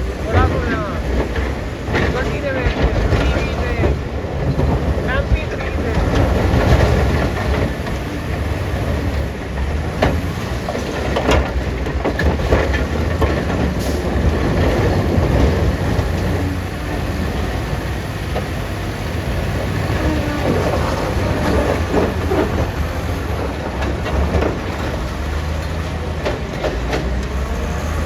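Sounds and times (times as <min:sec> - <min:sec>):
diesel machinery rumbling: 0:00.0 - 0:28.0
sharp knocks and clatter: 0:09.6 - 0:16.5, 0:20.4 - 0:28.0.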